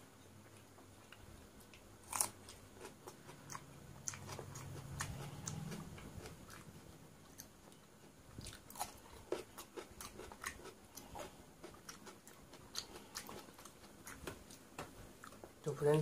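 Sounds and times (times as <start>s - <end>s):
person chewing with crunches: 0.4s - 15.6s.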